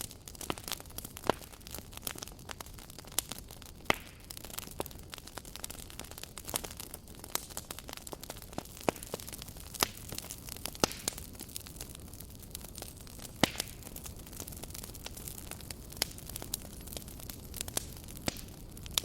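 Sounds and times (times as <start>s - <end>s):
campfire crackling: 0.0s - 19.0s
fire popping and snapping: 0.0s - 19.0s.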